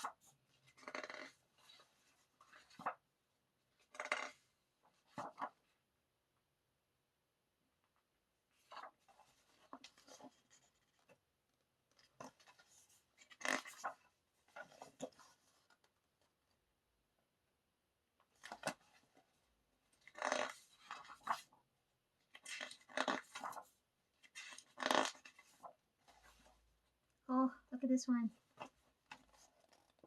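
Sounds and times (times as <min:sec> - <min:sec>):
paper pages rustling: 0:00.0 - 0:03.0, 0:08.6 - 0:11.2, 0:12.0 - 0:16.1, 0:18.4 - 0:19.3, 0:20.0 - 0:21.6, 0:22.2 - 0:26.7, 0:28.5 - 0:30.0.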